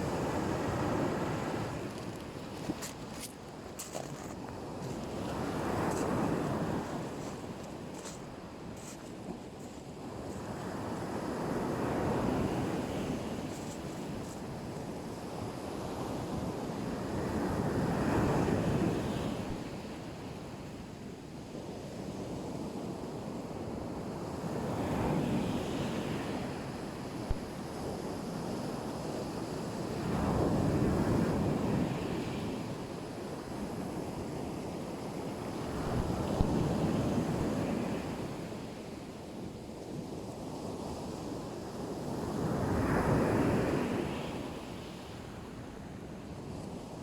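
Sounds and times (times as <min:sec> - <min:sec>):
wind on microphone: 0:24.8 - 0:28.7, 0:35.6 - 0:38.5.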